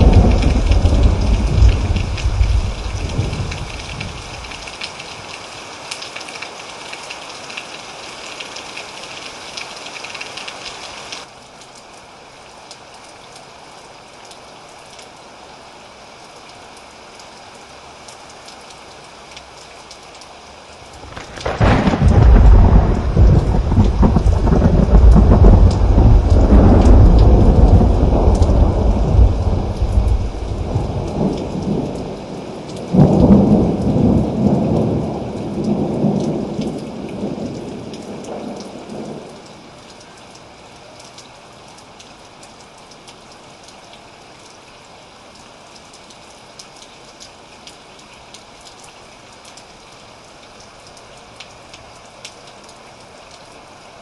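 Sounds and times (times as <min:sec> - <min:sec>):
thunder rumbling: 0:00.0 - 0:04.6, 0:20.9 - 0:32.2, 0:32.9 - 0:39.3
steady rain: 0:00.0 - 0:54.0.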